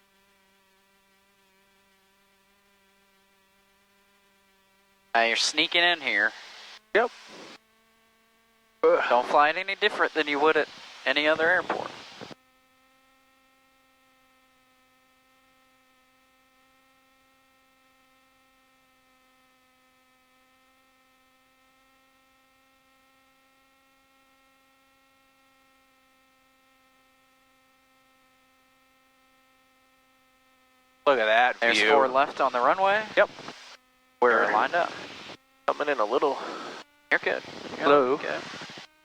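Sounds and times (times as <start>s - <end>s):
faint electrical hum: 29.0s - 38.9s.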